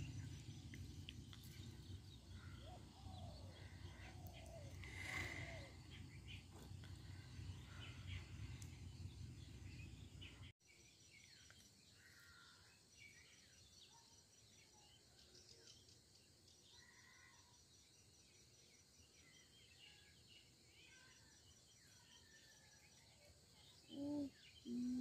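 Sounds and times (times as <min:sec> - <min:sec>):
bird chirps: 0:19.1 - 0:25.0.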